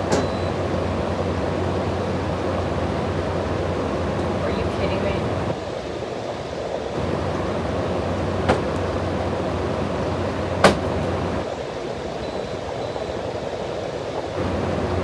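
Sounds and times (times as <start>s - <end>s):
air conditioner fan humming: 0.0s - 5.6s, 6.9s - 11.5s, 14.4s - 15.0s.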